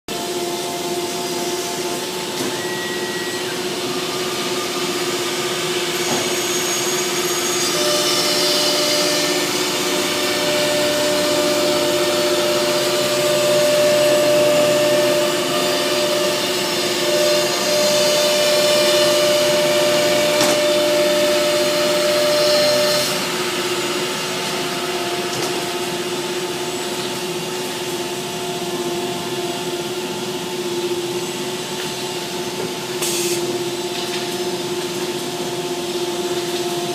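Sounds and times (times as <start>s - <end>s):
higher machine tone: 0.2s - 32.5s
engraving machine motor whine: 0.2s - 32.9s.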